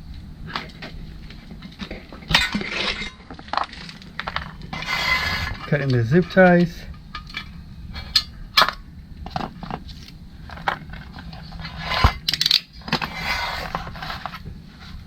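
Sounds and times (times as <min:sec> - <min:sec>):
hand tools clicking and clinking: 0:11.9 - 0:13.0.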